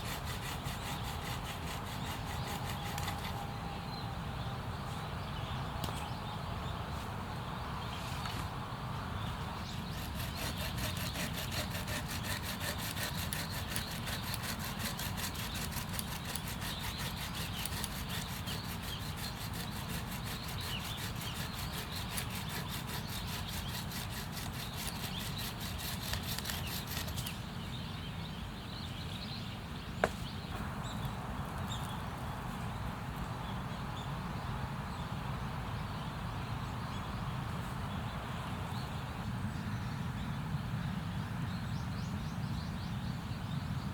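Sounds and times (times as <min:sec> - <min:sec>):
hand saw cutting wood: 0:00.0 - 0:03.4, 0:09.8 - 0:27.4.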